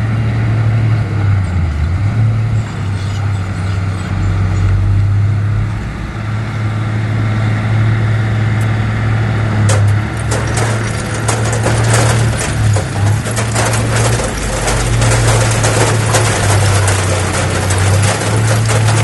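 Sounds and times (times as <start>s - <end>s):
diesel machinery engine drone: 0.0s - 19.0s
clattering knocks: 9.6s - 19.0s.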